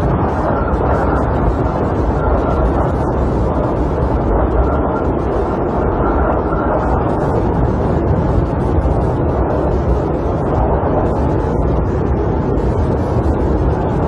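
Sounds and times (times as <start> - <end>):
snowstorm wind rushing: 0.0 - 14.0.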